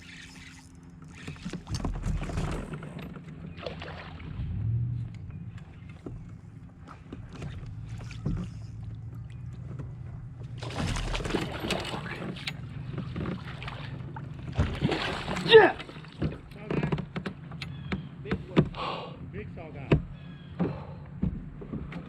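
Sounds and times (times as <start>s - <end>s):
water splashing: 3.5s - 4.8s, 10.4s - 16.7s.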